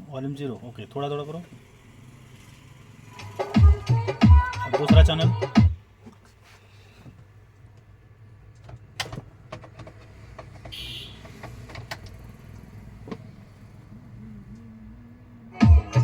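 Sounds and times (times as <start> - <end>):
clicks and light knocks: 8.5 - 12.2.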